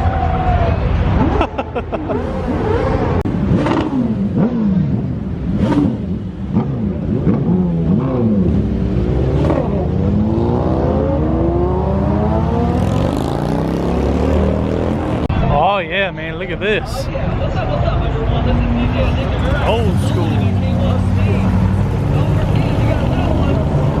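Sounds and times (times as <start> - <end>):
car engine revving: 2.1 - 15.3, 18.5 - 24.0.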